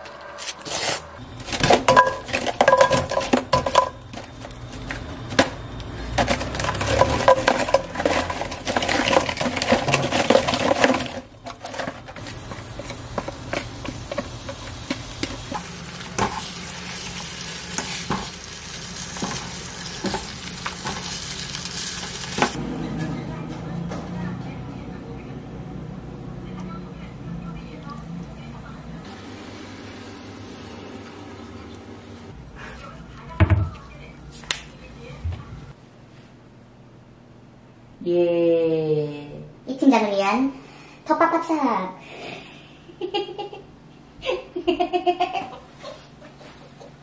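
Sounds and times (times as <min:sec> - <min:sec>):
cookware clinking: 0:01.8 - 0:04.0
food sizzling in a pan: 0:12.3 - 0:22.6.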